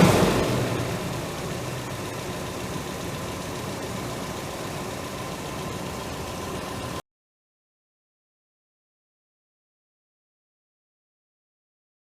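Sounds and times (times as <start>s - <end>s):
car engine idling after a rev: 0.0s - 7.0s.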